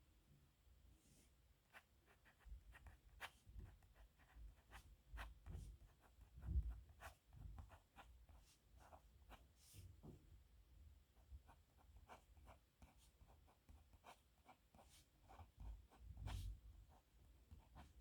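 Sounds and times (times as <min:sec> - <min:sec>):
pen scratching on paper: 0:12.0 - 0:17.0.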